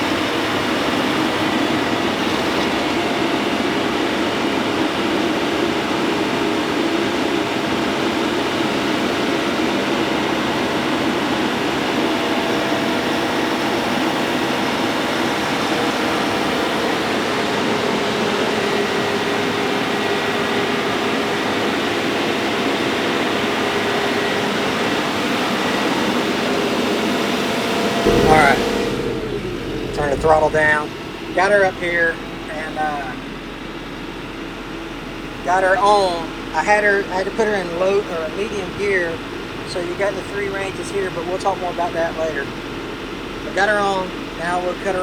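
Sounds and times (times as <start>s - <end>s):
tractor diesel engine under load: 30.0s - 45.0s.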